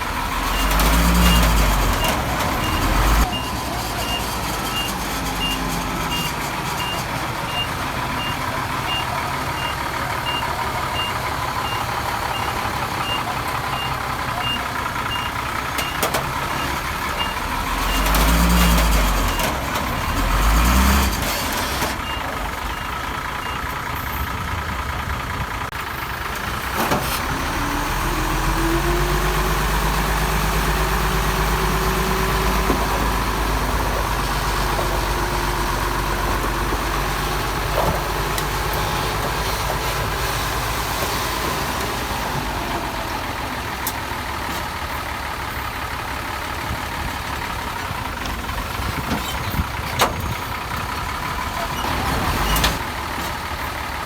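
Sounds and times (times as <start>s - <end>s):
diesel engine revving under load: 0.0s - 54.0s
reversing alarm beeping: 0.5s - 16.0s, 16.6s - 18.2s.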